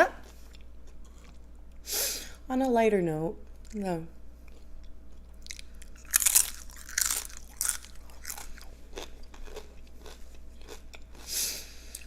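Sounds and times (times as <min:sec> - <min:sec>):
chewing crunchy chips: 0:00.2 - 0:01.5, 0:04.4 - 0:12.0.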